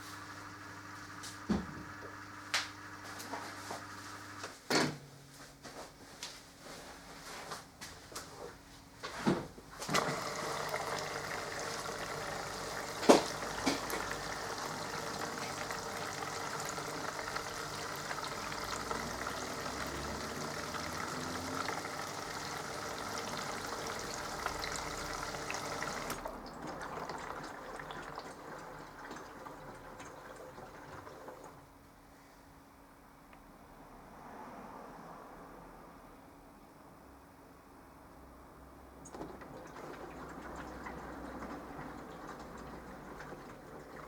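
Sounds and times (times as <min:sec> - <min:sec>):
water rushing into machine: 0:09.8 - 0:31.6, 0:39.0 - 0:44.0.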